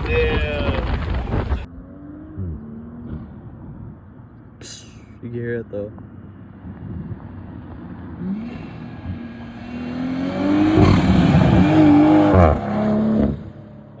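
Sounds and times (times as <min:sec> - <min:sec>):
car engine accelerating hard: 0:06.6 - 0:14.0.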